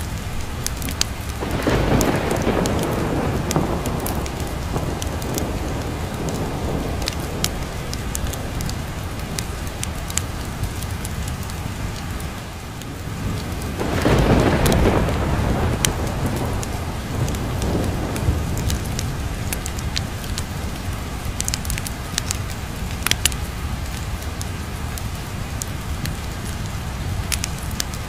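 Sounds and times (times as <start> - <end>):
heavy rain: 0.0 - 28.0
thunder rolling: 0.7 - 11.6, 12.8 - 23.2.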